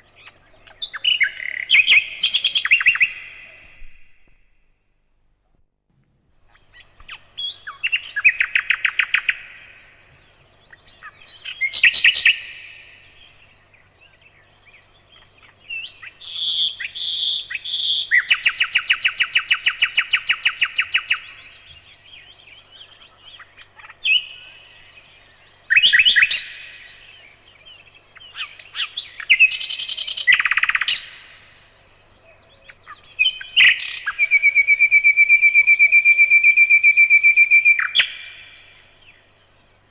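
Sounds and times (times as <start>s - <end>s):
whistled bird notes: 0.0s - 4.3s, 32.2s - 39.6s
nightingale singing: 0.0s - 4.6s, 6.3s - 39.9s.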